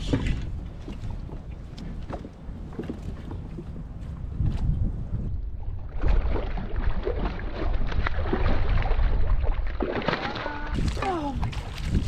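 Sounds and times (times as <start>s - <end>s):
wind buffeting microphone: 0.0s - 9.8s, 10.5s - 12.0s
small knocks and splashes: 5.9s - 12.0s.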